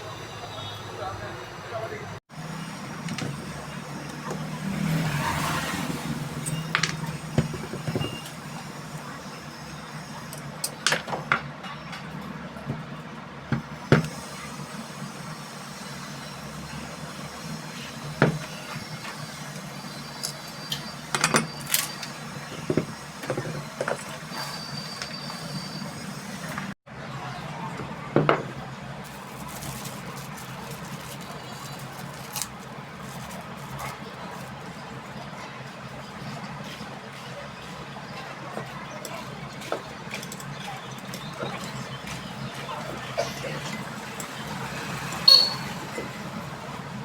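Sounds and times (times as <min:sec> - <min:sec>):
metal parts and tools clicking: 0:19.5 - 0:25.1.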